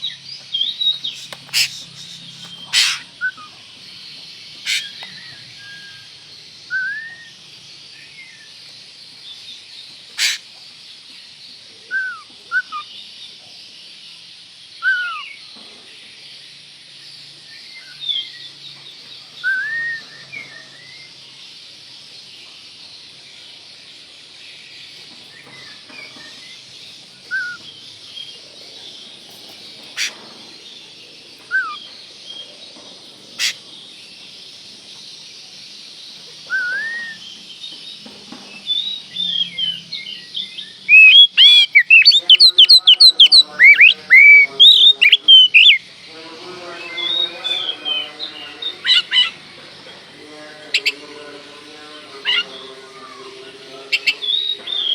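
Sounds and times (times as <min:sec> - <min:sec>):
steady hiss: 0:00.0 - 0:03.2
bird singing whistled notes: 0:00.0 - 0:03.6, 0:04.6 - 0:08.6, 0:11.8 - 0:13.0, 0:14.7 - 0:15.4, 0:19.3 - 0:21.2, 0:25.3 - 0:28.3, 0:31.4 - 0:32.0, 0:36.4 - 0:45.9.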